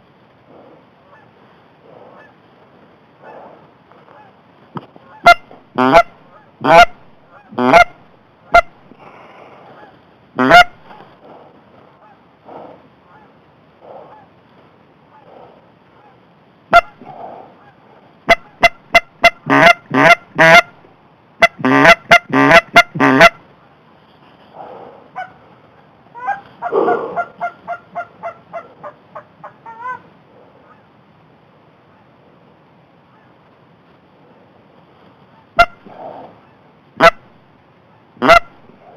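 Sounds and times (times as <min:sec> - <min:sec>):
goose honking and clucking: 0:05.0 - 0:08.8, 0:09.7 - 0:11.0, 0:16.0 - 0:20.8, 0:21.4 - 0:23.4, 0:26.1 - 0:30.8, 0:35.6 - 0:37.3, 0:38.2 - 0:38.6.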